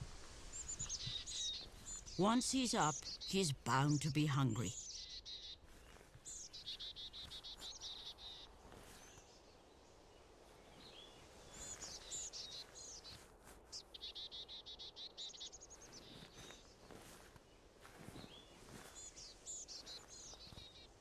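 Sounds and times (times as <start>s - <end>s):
low background hiss: 0.0s - 4.7s
small birds trilling: 0.4s - 9.6s, 13.8s - 21.0s.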